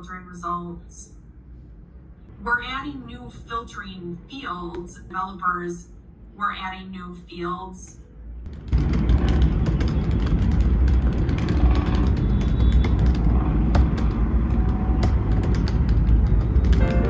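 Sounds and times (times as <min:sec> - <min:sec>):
clicks and knocks: 0:08.5 - 0:17.0.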